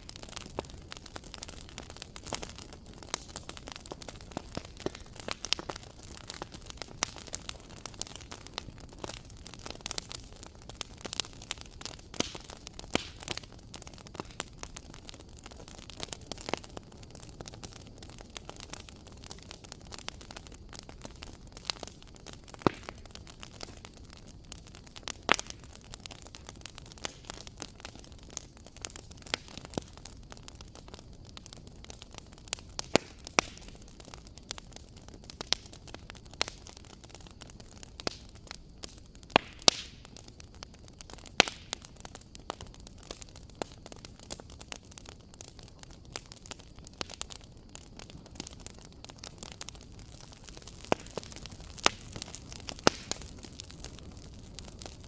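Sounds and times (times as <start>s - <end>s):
low hiss of burning: 0.0s - 55.0s
wood fire crackling: 0.0s - 55.0s.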